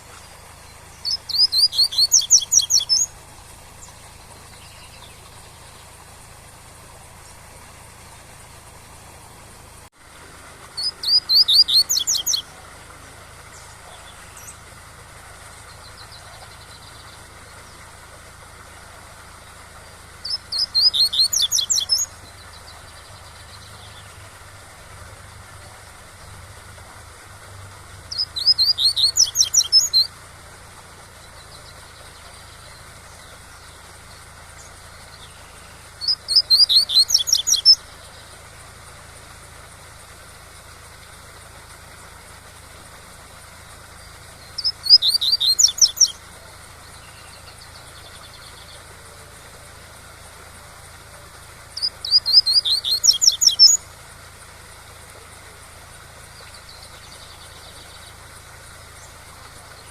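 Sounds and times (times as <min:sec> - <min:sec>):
waterfall rushing: 0:00.0 - 0:31.1.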